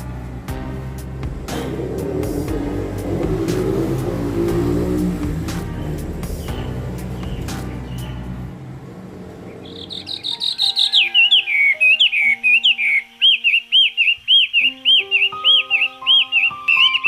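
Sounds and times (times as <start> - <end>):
faint sustained music tones: 0.0 - 17.0
songbird whistling and chirping: 9.6 - 17.0.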